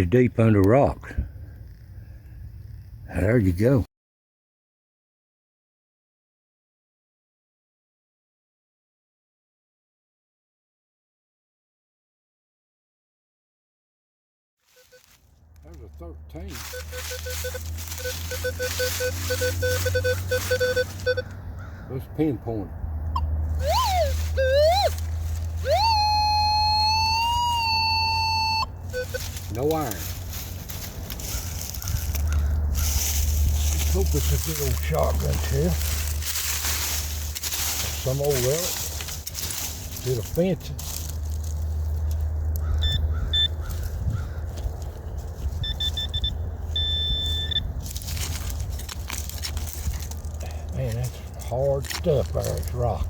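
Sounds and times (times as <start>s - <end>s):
metal detector beeps: 14.8s - 15.1s, 16.4s - 21.4s, 23.2s - 30.3s, 37.0s - 39.2s, 42.8s - 43.6s, 45.6s - 48.1s
metal detector rising tone: 16.5s - 21.4s, 23.2s - 30.6s, 42.8s - 43.6s, 45.6s - 47.7s.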